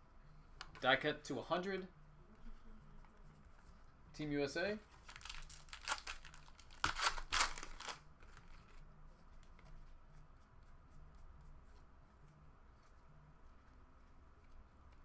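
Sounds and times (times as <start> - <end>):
plastic wrapper crinkling and tearing: 4.9 - 8.8.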